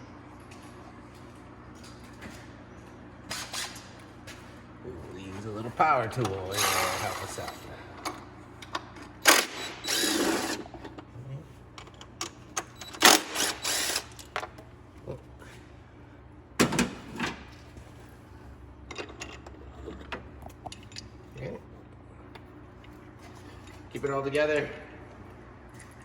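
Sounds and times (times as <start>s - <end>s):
handheld power tool spurts: 9.2s - 10.7s, 12.9s - 14.3s.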